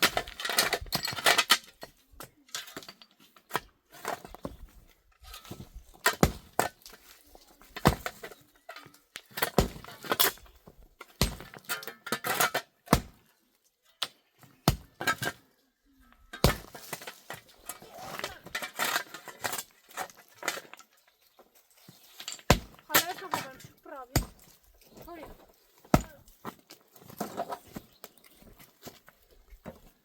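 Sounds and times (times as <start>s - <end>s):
sharp knocks and thuds: 22.5s - 23.5s.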